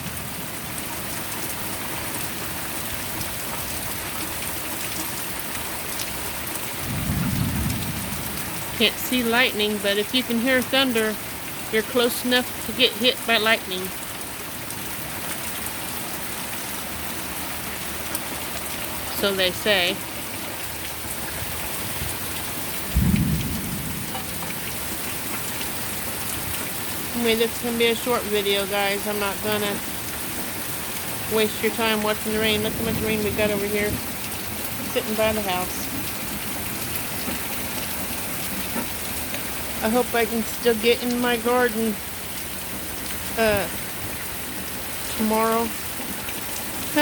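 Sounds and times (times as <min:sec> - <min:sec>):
heavy rain on ground: 0:00.0 - 0:47.0
low thunder clap: 0:06.8 - 0:09.6, 0:21.8 - 0:25.6
distant thunder rumble: 0:06.8 - 0:11.8, 0:20.9 - 0:30.0, 0:30.8 - 0:40.7.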